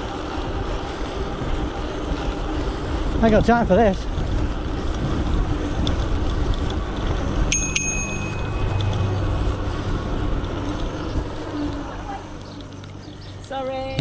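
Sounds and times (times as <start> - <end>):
low rumble of riding: 0.0 - 14.0
bicycle bell ringing: 7.3 - 9.8.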